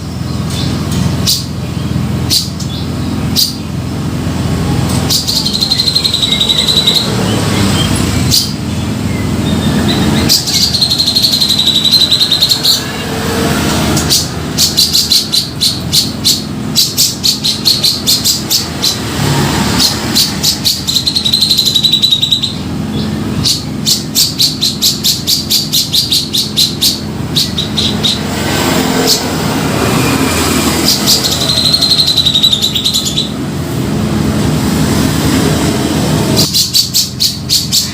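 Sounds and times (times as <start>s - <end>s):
bird chattering call: 5.0s - 33.4s, 36.4s - 37.9s.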